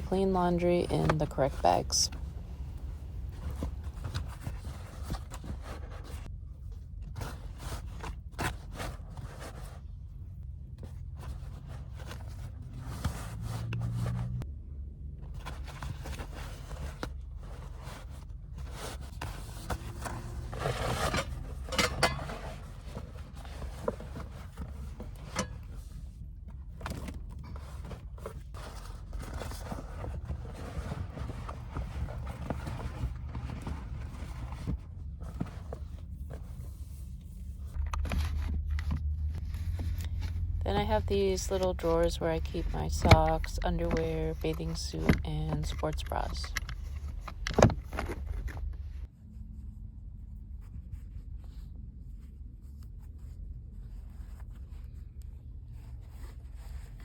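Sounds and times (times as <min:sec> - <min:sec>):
steady low hum: 0:00.0 - 0:57.0
clothes and bags rustling: 0:15.3 - 0:49.1.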